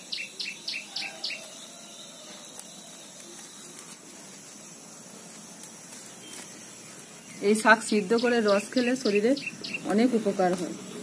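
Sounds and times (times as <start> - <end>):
faint outdoor background: 0.0 - 11.0
small bird chirping: 0.0 - 11.0.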